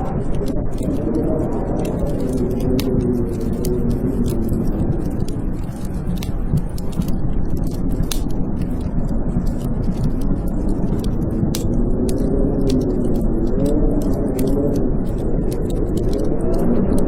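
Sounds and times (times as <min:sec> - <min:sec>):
blizzard wind howling: 0:00.0 - 0:17.0
wood fire crackling: 0:00.0 - 0:17.0.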